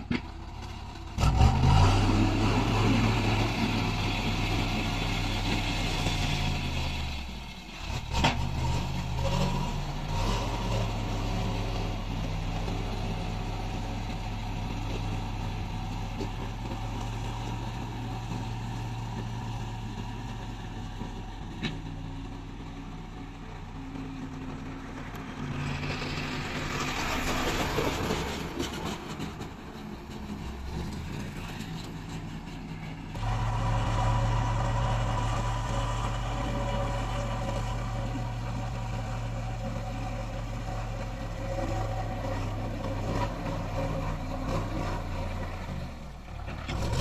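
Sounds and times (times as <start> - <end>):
heavy machinery diesel engine: 0.0 - 47.0.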